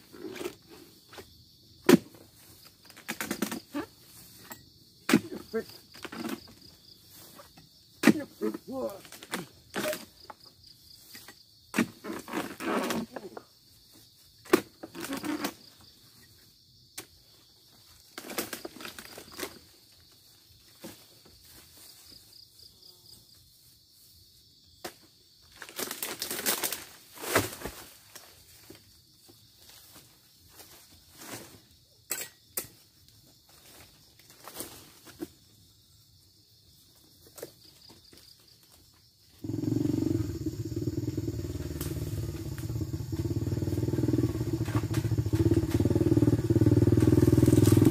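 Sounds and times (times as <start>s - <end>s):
fronds rustling: 25.5s - 28.9s, 40.7s - 47.9s
motorcycle engine running: 39.4s - 47.9s.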